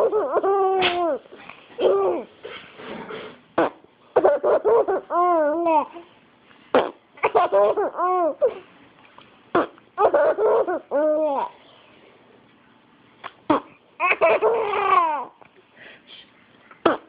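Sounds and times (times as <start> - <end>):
baby laughing: 0.0 - 2.3, 3.6 - 6.1, 6.8 - 8.7, 9.6 - 11.6, 13.2 - 15.4.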